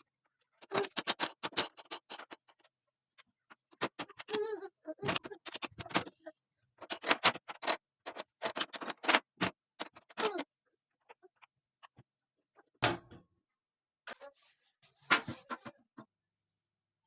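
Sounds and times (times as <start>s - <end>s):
household objects clicking and knocking: 0.0s - 13.4s.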